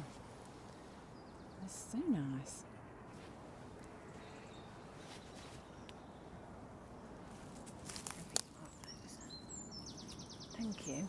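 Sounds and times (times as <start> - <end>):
hands handling twigs and cones: 7.2 - 9.2.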